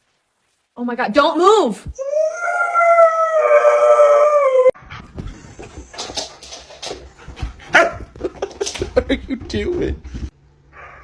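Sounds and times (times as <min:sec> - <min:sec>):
dog howling: 0:02.0 - 0:04.8.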